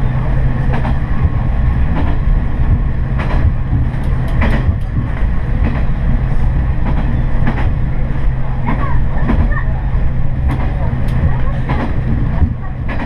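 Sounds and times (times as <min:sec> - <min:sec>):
wheels clicking over rails: 0:00.6 - 0:06.0.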